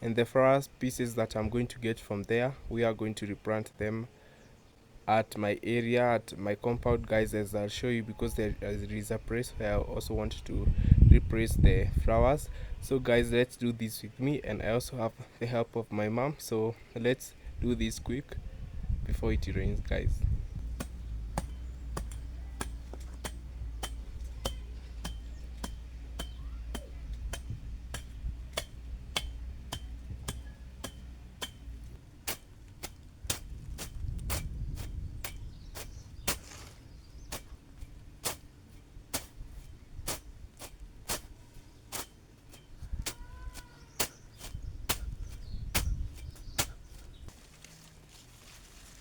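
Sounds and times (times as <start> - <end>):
grass cutting strikes: 20.6 - 48.3.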